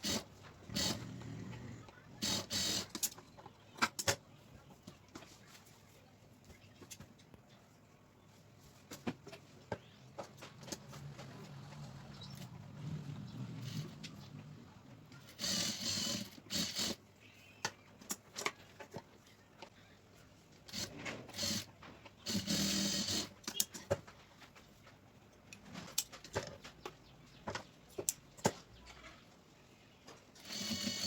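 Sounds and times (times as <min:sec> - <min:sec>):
sewing machine stitching: 0:00.0 - 0:03.1, 0:15.2 - 0:17.0, 0:20.7 - 0:23.6, 0:30.4 - 0:31.0.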